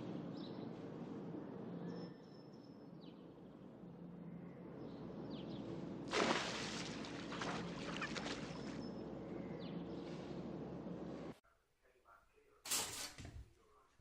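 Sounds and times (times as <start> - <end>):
steady low hum: 0.0 - 12.6
falling bird chirps: 7.4 - 10.4.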